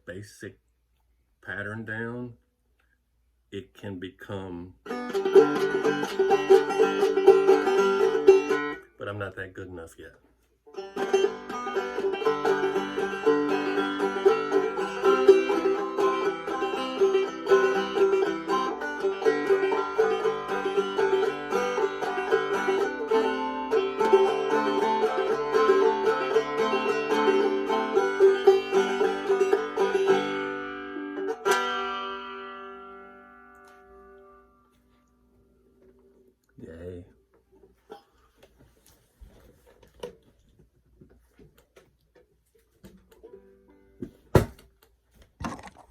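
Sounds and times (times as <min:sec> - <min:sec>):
banjo picking and strumming: 0:04.8 - 0:09.3, 0:10.7 - 0:36.2, 0:37.5 - 0:38.6, 0:41.4 - 0:44.5.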